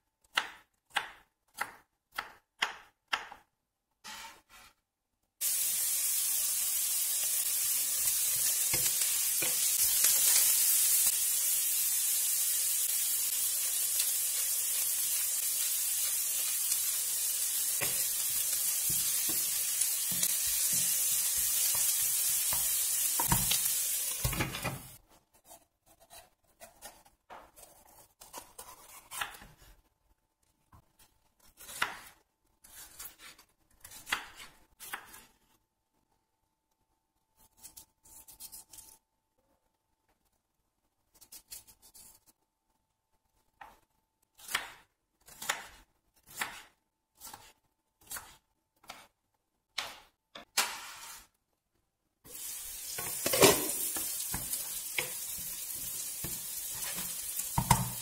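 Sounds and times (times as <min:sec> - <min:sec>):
onion sizzling in oil: 0:05.4 - 0:25.0, 0:52.3 - 0:58.0.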